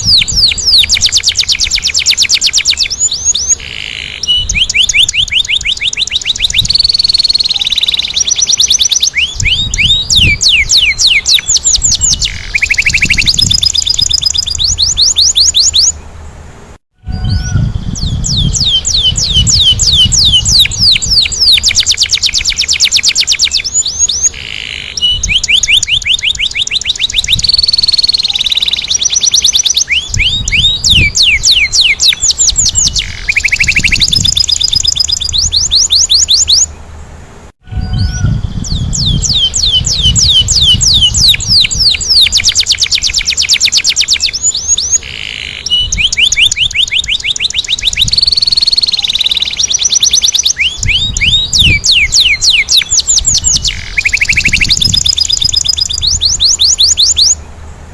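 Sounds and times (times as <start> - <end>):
canary singing trills: 0.0 - 16.2, 17.1 - 37.0, 37.7 - 57.6.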